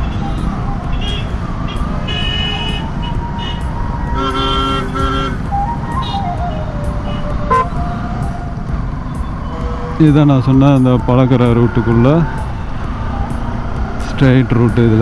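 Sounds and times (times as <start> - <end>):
vehicle horns honking: 0.0 - 8.4
motorcycle engine and road rumble: 0.0 - 15.0.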